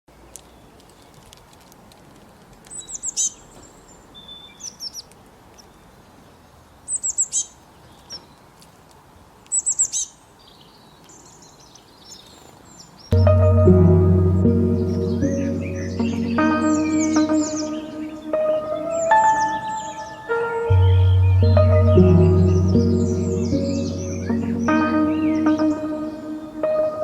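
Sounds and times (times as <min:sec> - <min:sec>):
songbird chirping: 0:09.5 - 0:27.0.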